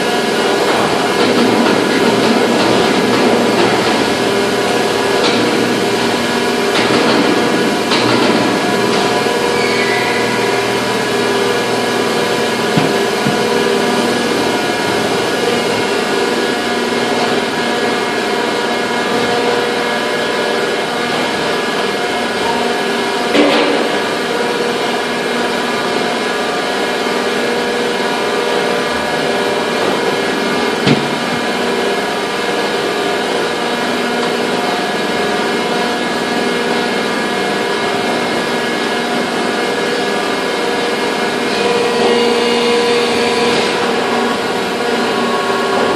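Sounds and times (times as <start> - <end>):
factory machinery droning: 0.0 - 45.9
sharp knocks: 30.8 - 31.5.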